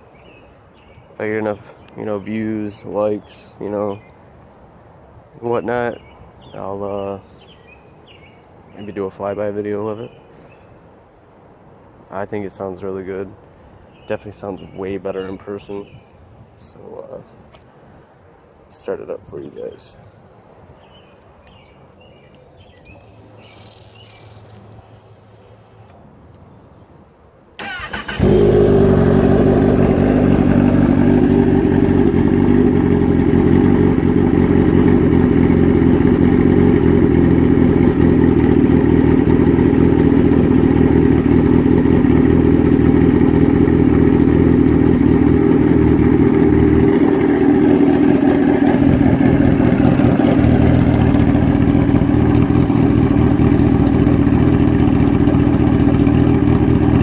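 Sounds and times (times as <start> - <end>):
motorcycle engine starting and idling: 27.6 - 57.0.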